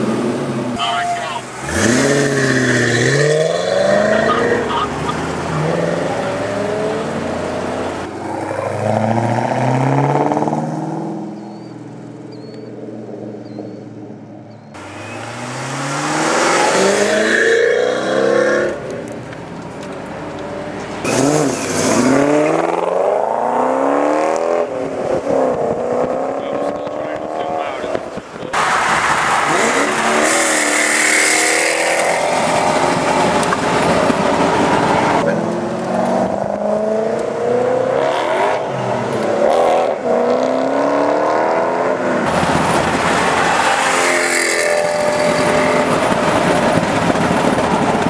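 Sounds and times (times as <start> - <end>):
car engine accelerating hard: 1.5 - 11.3, 14.8 - 18.9.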